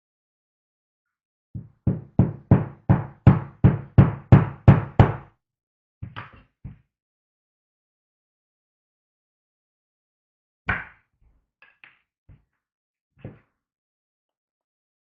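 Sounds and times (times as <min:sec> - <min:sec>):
hammer strikes on wood: 0:01.6 - 0:05.3.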